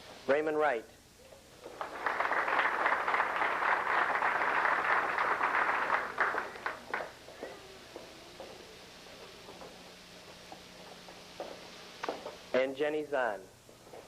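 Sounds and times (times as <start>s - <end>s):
audience applauding: 1.7s - 7.2s.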